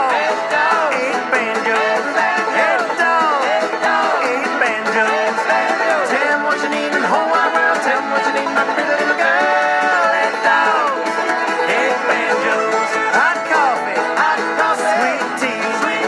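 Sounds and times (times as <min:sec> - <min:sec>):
banjo music: 0:00.0 - 0:16.0.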